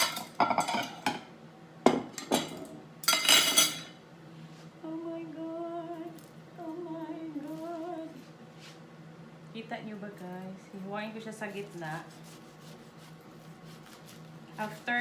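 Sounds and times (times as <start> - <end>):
dishes and utensils clattering: 0.0 - 1.3, 1.9 - 4.0
woman humming: 4.8 - 8.3.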